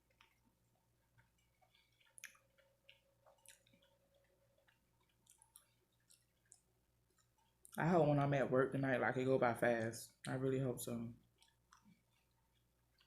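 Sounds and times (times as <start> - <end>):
person chewing food: 0.0 - 7.8, 11.2 - 13.0.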